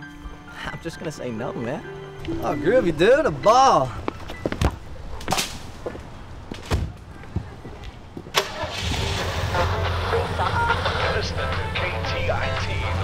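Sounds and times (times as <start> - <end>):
car engine starting and running: 8.3 - 13.0.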